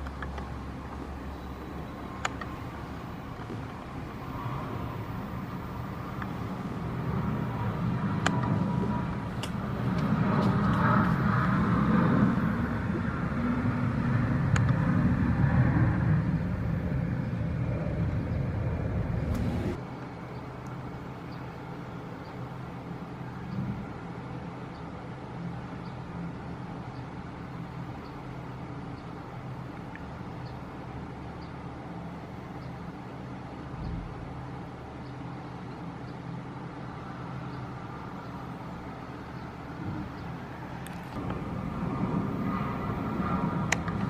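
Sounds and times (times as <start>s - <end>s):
jet engines roaring: 0.0s - 24.4s, 36.6s - 44.0s.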